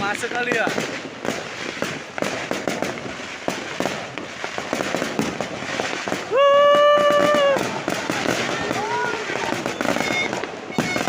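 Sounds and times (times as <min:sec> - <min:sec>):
fireworks crackling pops: 0:00.0 - 0:11.0
loud held tone: 0:09.7 - 0:11.0.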